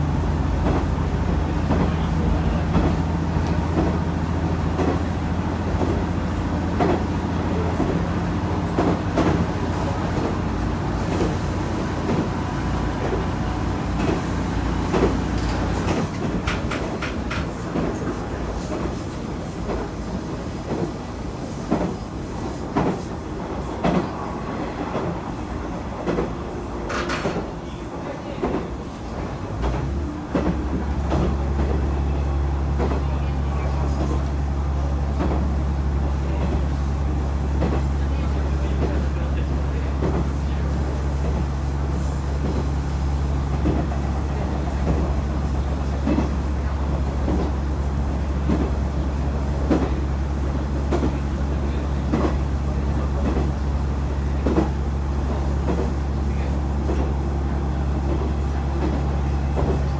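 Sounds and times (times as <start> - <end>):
railcar engine drone: 0.0 - 59.9
wheels clicking over rail joints: 12.0 - 18.9.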